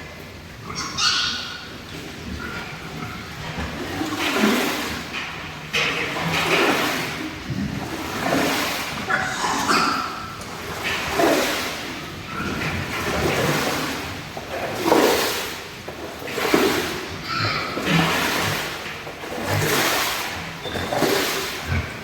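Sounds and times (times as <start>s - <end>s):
pigs squealing and grunting: 0.6s - 3.4s, 8.4s - 10.4s, 17.1s - 18.7s.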